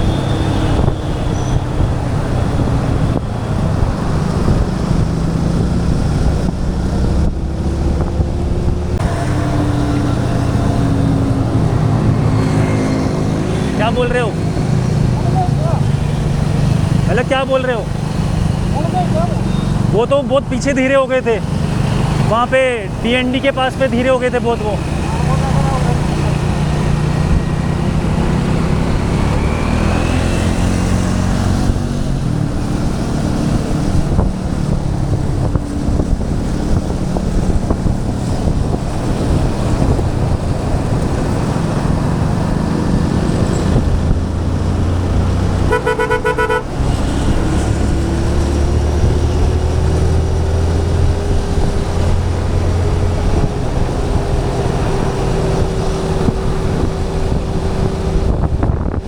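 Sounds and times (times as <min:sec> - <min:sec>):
motorcycle engine drone: 0:00.0 - 0:59.0
wind rumble: 0:00.0 - 0:59.0
vehicle horn honking: 0:45.7 - 0:46.8.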